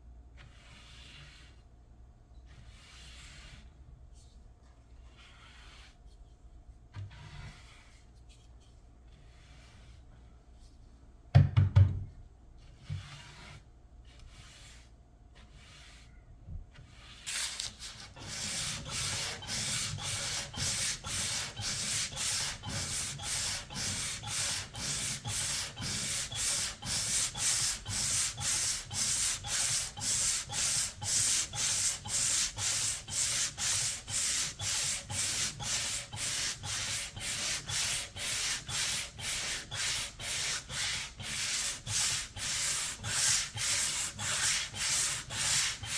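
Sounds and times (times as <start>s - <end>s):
knock: 11.3s - 12.1s
hand sanding with sandpaper: 13.0s - 16.1s, 16.8s - 45.9s.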